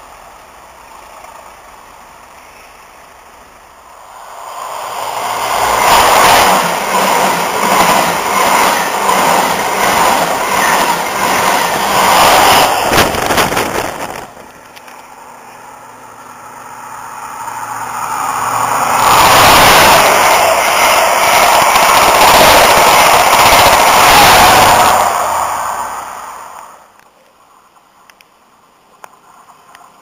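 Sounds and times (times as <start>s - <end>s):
distant train rumble: 0.0s - 30.0s
train passing at speed: 0.0s - 30.0s
diesel engine passing: 3.6s - 14.5s, 15.2s - 26.9s.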